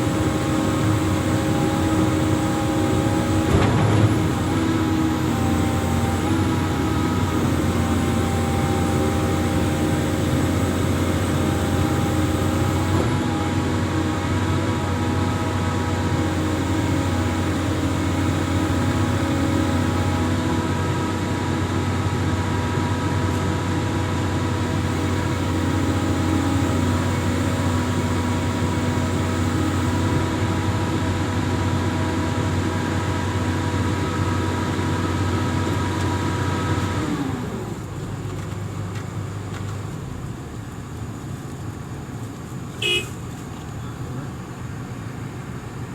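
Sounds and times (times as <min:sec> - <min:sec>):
whining tones: 0:00.0 - 0:20.6, 0:24.5 - 0:31.0
excavator diesel engine running: 0:00.0 - 0:40.2.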